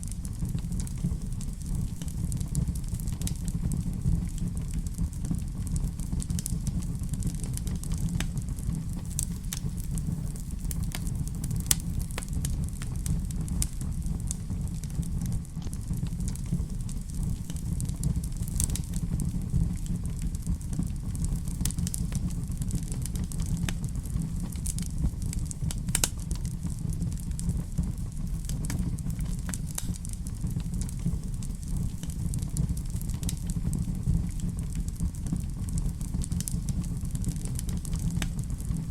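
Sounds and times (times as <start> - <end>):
fire crackling and popping: 0.0 - 38.9
low fire rumble: 0.0 - 38.9.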